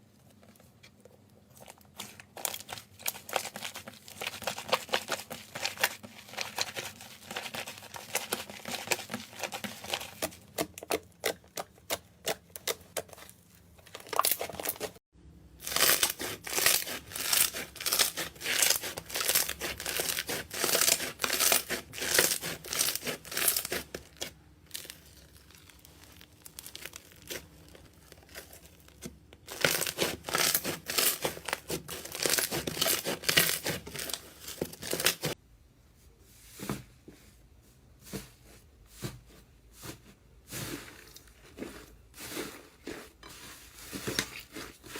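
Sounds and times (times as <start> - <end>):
slime crackling and popping: 10.8 - 15.0, 15.6 - 35.4.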